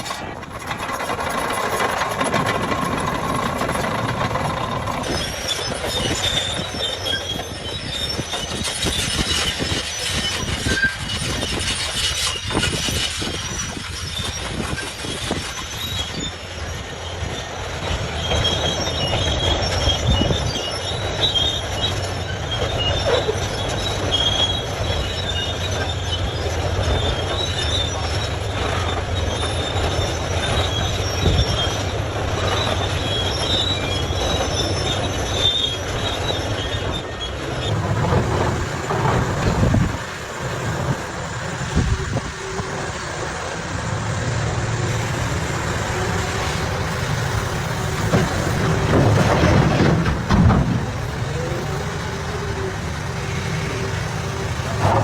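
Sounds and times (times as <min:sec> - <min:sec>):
heavy machinery rumbling: 0:00.0 - 0:15.5, 0:37.4 - 0:55.0
high-pitched metallic squeal: 0:00.0 - 0:55.0.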